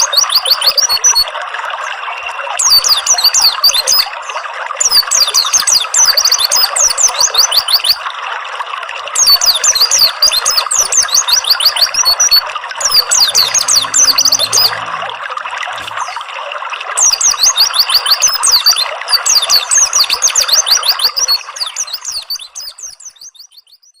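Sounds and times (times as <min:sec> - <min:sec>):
gurgling trickling water: 0:00.0 - 0:23.9
high falling bird chirps: 0:11.0 - 0:15.2.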